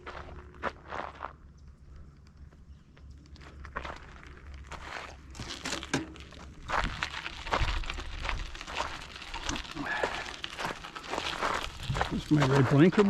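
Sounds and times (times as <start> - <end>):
footsteps crunching on gravel: 0.0 - 1.4, 3.2 - 13.0.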